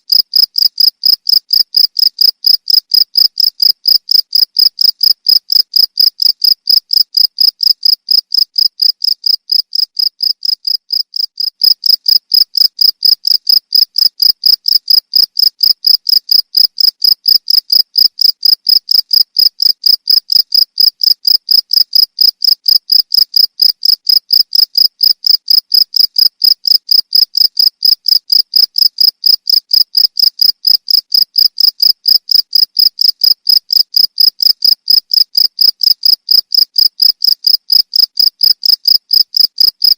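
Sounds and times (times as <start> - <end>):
cricket chirping: 0.1 - 39.9.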